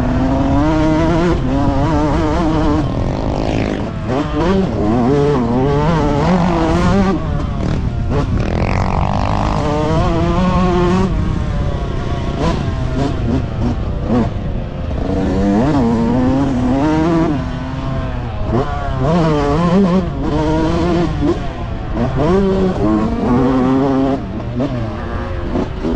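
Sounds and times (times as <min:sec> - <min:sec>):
motocross bike engines revving: 0:00.0 - 0:25.9.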